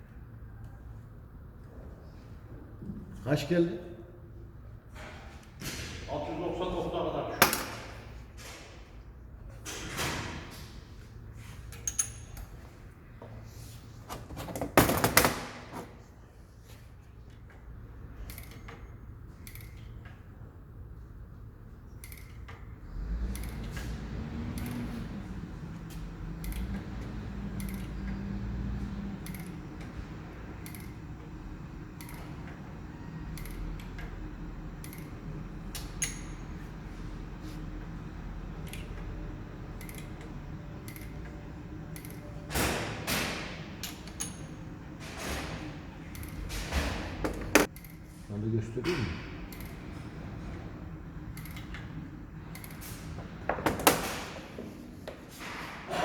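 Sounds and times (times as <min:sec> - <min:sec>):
metal clink with ring: 0:11.8 - 0:12.6, 0:36.0 - 0:36.5
steady low hum: 0:15.3 - 0:55.5
light metallic clicks: 0:22.0 - 0:22.6, 0:25.8 - 0:28.3, 0:29.2 - 0:29.9, 0:32.0 - 0:32.3, 0:39.8 - 0:41.3, 0:47.6 - 0:48.1, 0:49.5 - 0:49.8.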